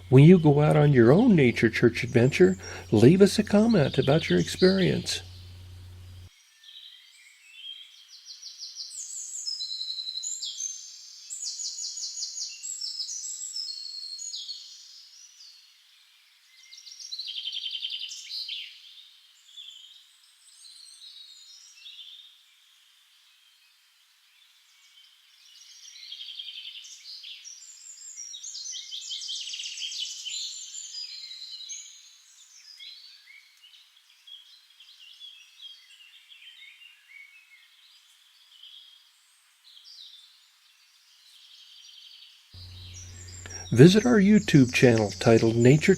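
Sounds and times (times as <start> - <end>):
songbirds trilling: 0.0 - 6.3, 42.6 - 45.9.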